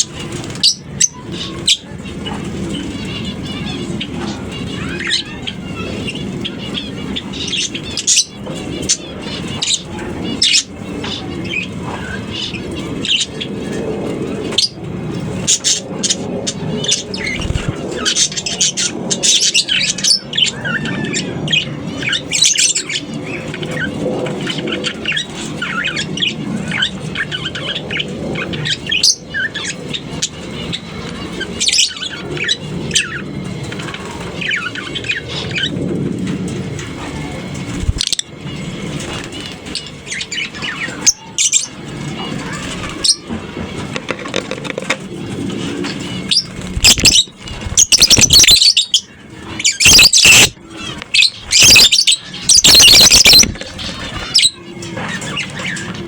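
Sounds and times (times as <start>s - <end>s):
birds chirping and squawking: 0.0s - 56.0s.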